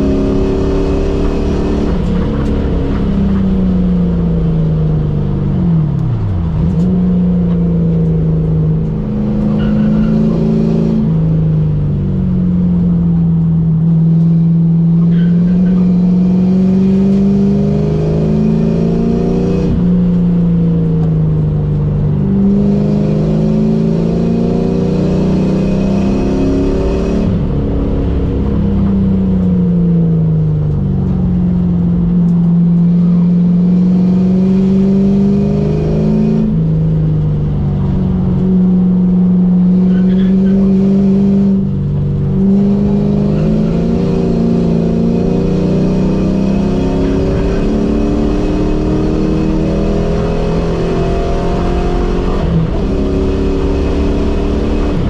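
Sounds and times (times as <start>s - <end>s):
car engine accelerating and shifting: 0.0s - 55.0s.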